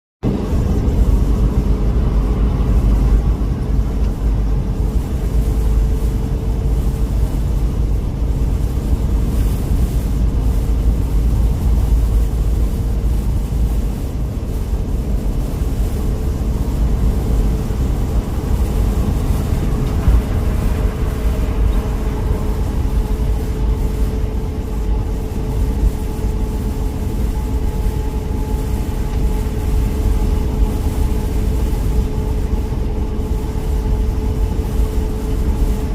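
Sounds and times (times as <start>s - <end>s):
constant hum: 0.2s - 35.9s
vehicle engine and road rumble: 0.2s - 35.9s.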